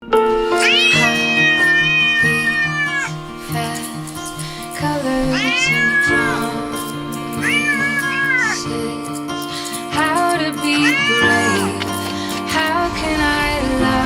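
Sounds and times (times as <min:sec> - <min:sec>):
background music: 0:00.0 - 0:14.0
cat meowing: 0:00.5 - 0:03.2, 0:05.3 - 0:08.7, 0:10.7 - 0:12.1.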